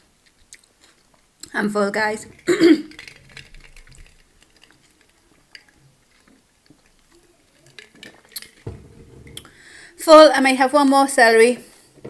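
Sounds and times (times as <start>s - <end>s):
dishes clicking and knocking: 2.1s - 9.6s.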